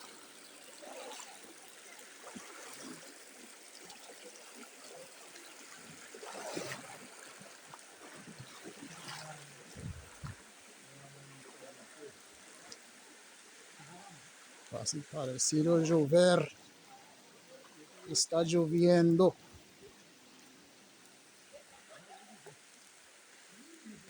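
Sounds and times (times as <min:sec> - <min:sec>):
water splashes: 0:00.0 - 0:16.8
river water trickling: 0:00.0 - 0:24.0.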